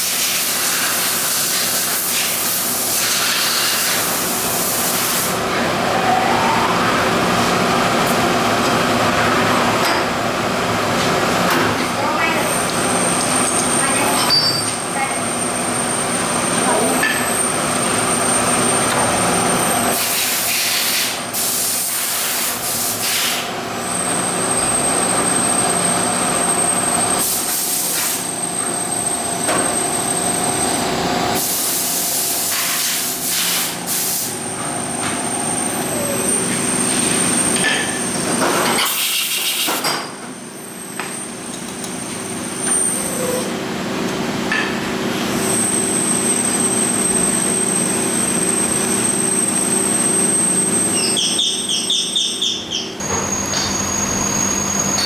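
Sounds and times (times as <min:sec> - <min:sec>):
factory machinery whine and hum: 0:00.0 - 0:52.0, 0:52.6 - 0:55.0.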